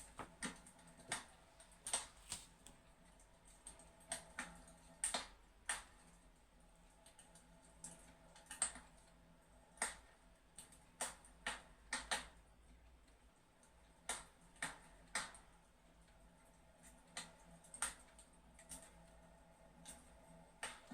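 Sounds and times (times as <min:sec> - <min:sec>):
fireplace crackling: 0:00.0 - 0:03.2.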